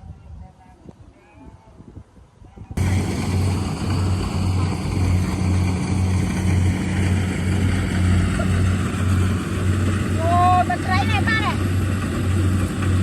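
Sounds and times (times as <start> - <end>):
engine pulsing drone: 2.8 - 13.0.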